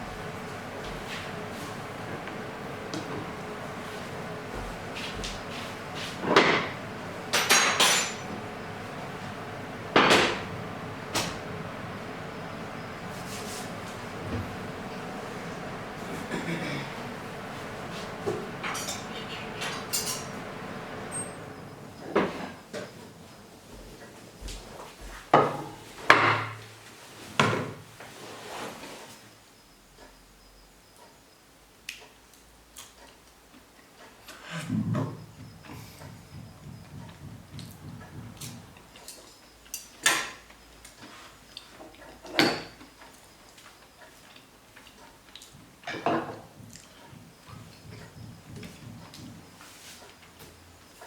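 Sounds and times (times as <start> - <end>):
knocks and clinks: 7.3 - 8.3, 18.6 - 20.4.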